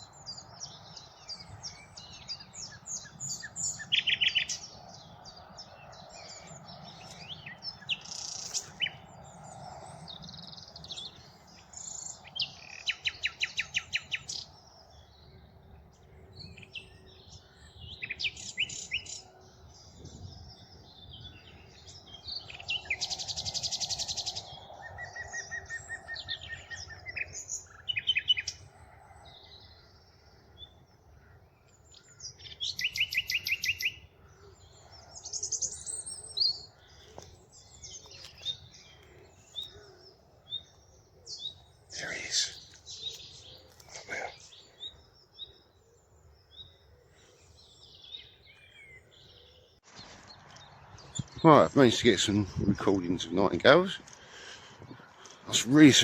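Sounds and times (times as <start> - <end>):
nightingale singing: 0.0 - 49.8.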